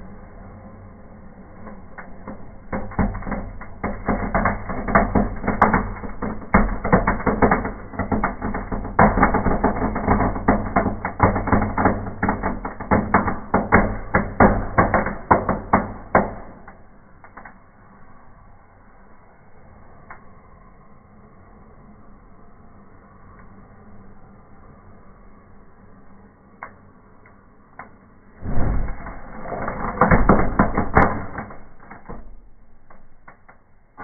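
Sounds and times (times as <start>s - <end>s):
fireworks crackling and popping: 1.6s - 17.6s, 28.4s - 34.0s.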